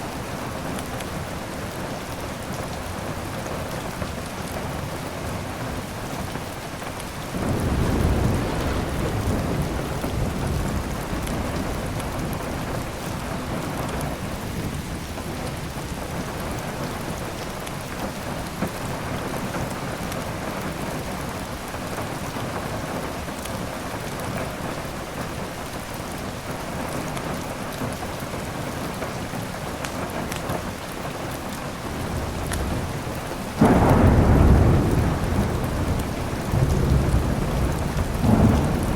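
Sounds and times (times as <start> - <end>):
heavy rain: 0.0 - 38.9
rolling thunder: 7.3 - 15.3, 31.9 - 38.9
sharp thunderclap: 7.4 - 12.7, 32.1 - 38.9.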